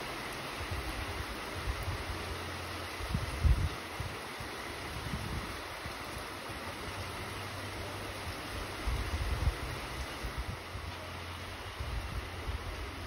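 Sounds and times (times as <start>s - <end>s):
steady rain falling: 0.0s - 13.0s
wind buffeting the microphone: 0.6s - 6.0s, 8.5s - 10.9s, 11.6s - 13.0s.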